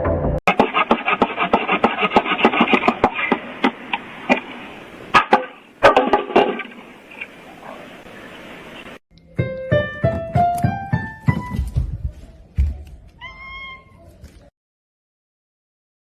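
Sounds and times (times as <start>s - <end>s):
rapid sharp cracks and knocks: 0.5s - 7.3s.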